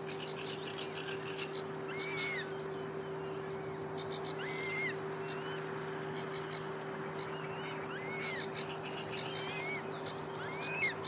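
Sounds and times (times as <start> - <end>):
steady low hum: 0.0 - 11.0
songbird singing whistled notes: 0.1 - 11.0.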